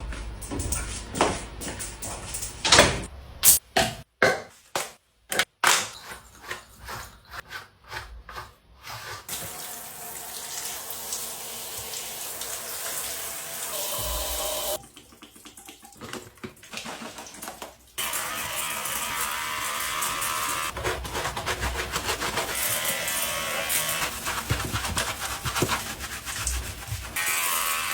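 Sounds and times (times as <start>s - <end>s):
shower water spraying: 9.3s - 14.8s, 17.2s - 27.9s.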